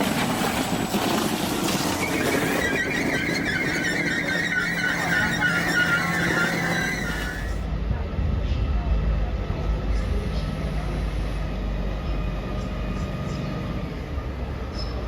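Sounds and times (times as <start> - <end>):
electric train rolling: 0.0 - 7.7, 9.9 - 15.0
high metallic squeal: 1.9 - 7.6.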